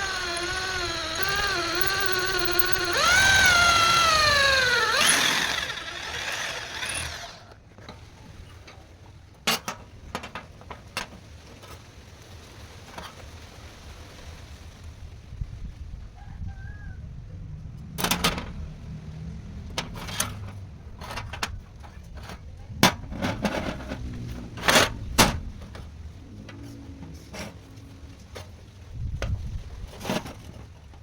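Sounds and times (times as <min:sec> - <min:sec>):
faint rooster-like call: 0:16.0 - 0:17.4.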